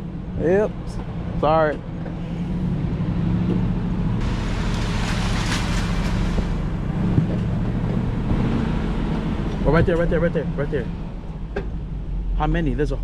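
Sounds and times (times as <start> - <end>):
vehicle engine humming: 4.2 - 8.5
rush of wind or road noise: 4.2 - 10.5.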